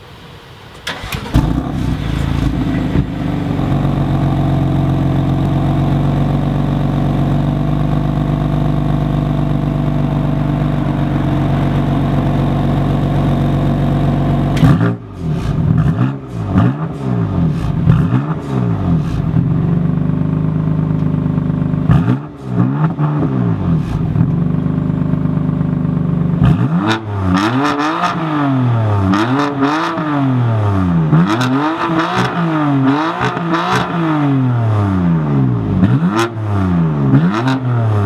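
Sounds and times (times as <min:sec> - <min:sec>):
car engine starting and idling: 0:00.0 - 0:38.0
car engine revving: 0:00.9 - 0:38.0.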